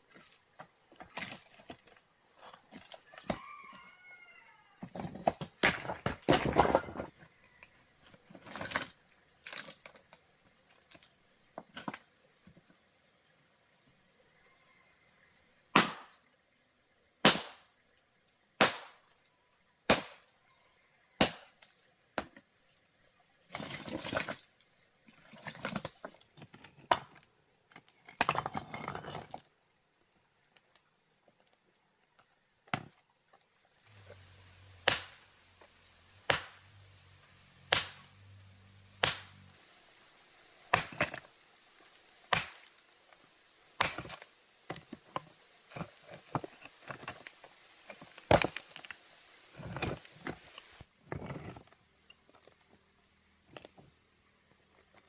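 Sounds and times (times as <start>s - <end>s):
hand tool striking hard material: 18.6s - 19.0s, 34.8s - 35.2s, 36.2s - 36.6s, 37.7s - 38.1s, 39.0s - 39.4s, 40.7s - 41.3s, 42.3s - 42.7s, 43.8s - 44.9s
rough scraping and rustling: 27.8s - 29.8s, 33.8s - 55.0s.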